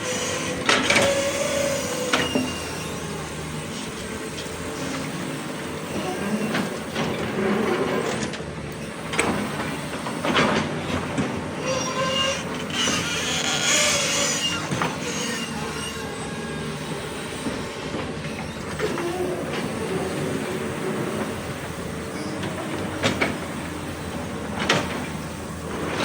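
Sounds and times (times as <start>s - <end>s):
excavator engine under load: 0.0s - 26.0s
high metallic squealing: 11.6s - 16.6s.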